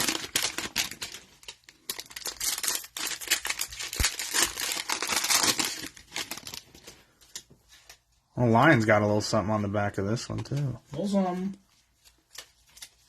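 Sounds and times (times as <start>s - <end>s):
cellophane wrapper tearing and crinkling: 0.0s - 6.8s, 11.9s - 13.0s.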